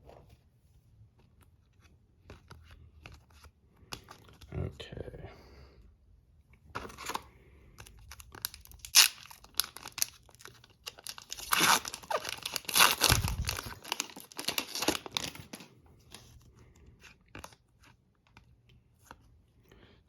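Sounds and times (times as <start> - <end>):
plastic wrapper tearing and crinkling: 7.8 - 15.7.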